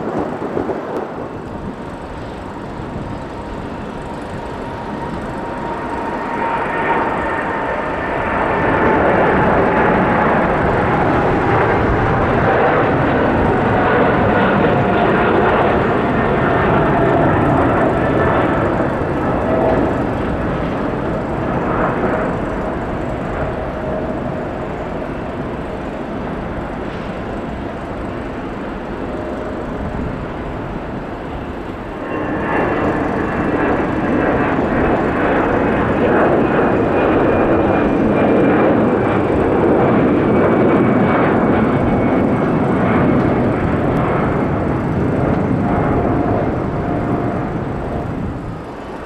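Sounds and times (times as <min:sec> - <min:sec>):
jet airliner passing by: 0:00.0 - 0:49.0.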